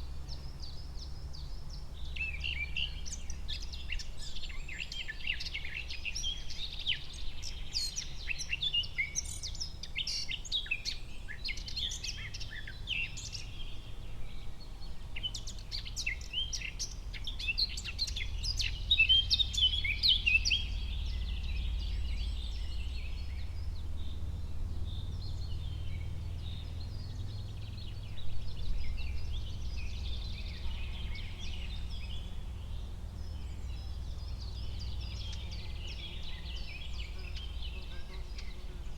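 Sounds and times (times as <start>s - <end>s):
birds chirping and singing: 0.0s - 38.9s.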